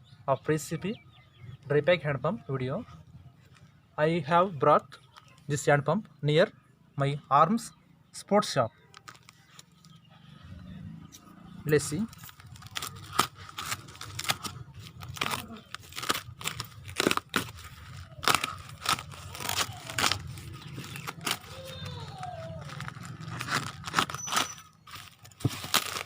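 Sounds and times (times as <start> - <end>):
packaging crinkling and tearing: 8.9 - 9.9, 11.9 - 26.0.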